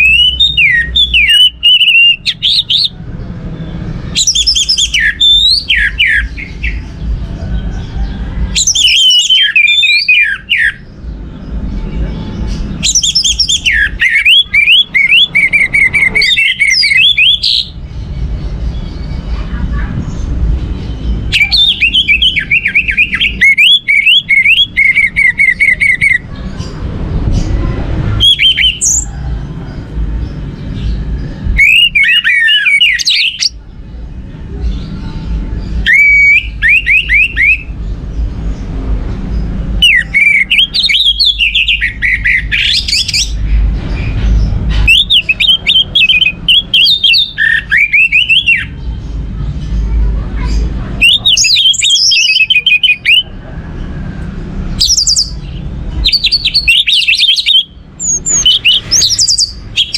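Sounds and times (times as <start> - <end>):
thrush singing whistled notes: 0.0 - 6.9, 8.0 - 11.0, 12.3 - 17.8, 21.2 - 26.2, 28.2 - 29.1, 30.8 - 33.6, 35.7 - 37.8, 39.8 - 44.2, 44.8 - 48.8, 54.7 - 59.9.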